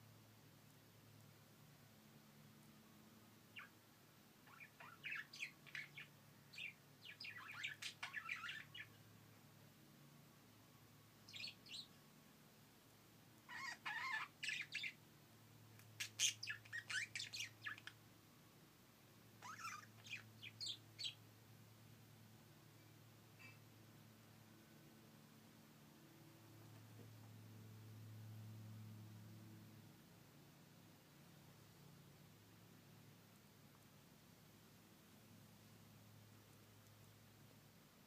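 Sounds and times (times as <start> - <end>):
pet bird chirping: 3.5 - 3.8, 4.4 - 9.0, 11.2 - 12.0, 13.4 - 15.0, 15.8 - 18.0, 19.4 - 21.2.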